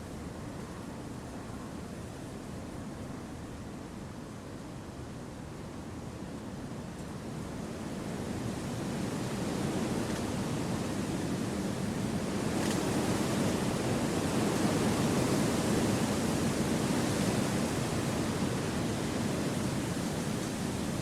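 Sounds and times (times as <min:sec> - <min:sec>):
wind rushing through trees: 0:07.6 - 0:21.0.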